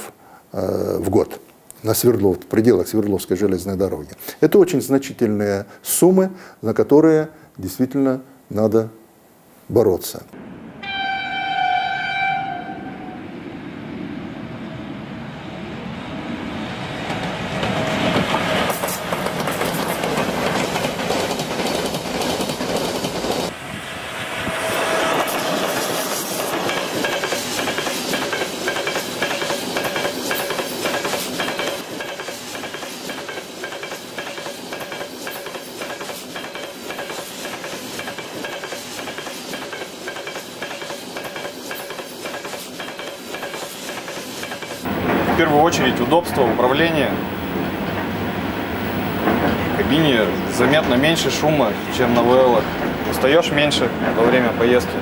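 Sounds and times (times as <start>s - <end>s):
train rolling with faint whine: 10.4s - 55.0s
freight wagon wheels clattering: 44.9s - 55.0s.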